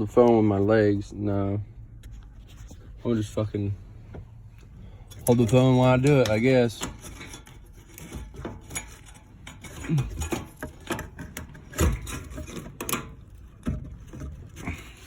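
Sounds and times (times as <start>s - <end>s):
hands working fuel line fitting: 4.0s - 15.0s.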